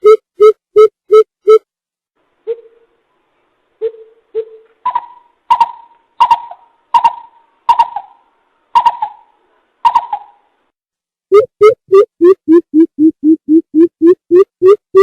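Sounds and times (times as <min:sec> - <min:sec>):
bird calls: 0:02.4 - 0:03.0, 0:03.8 - 0:10.5.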